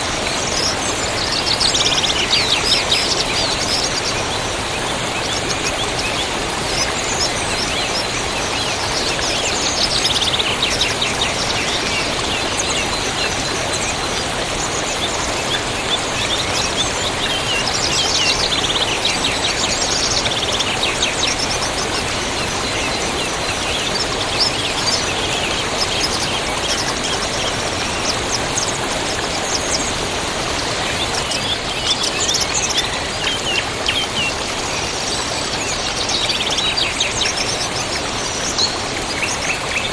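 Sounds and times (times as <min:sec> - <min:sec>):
river water flowing: 0:29.7 - 0:39.9
songbirds chirping and trilling: 0:29.8 - 0:39.9.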